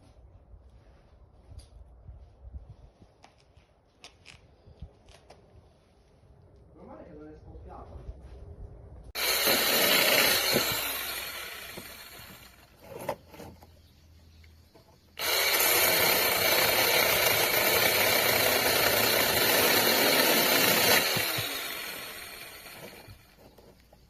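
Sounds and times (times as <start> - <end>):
mini chainsaw motor whine: 9.2 - 12.8, 15.2 - 23.6.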